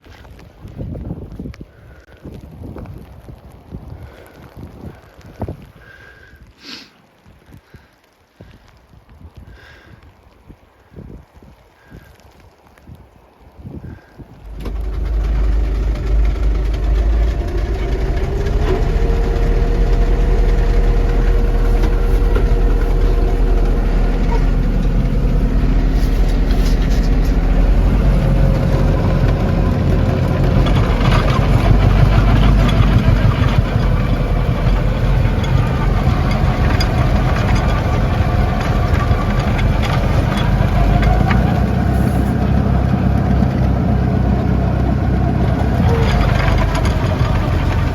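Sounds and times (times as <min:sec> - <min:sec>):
tractor diesel engine with whine: 0:14.4 - 0:47.9.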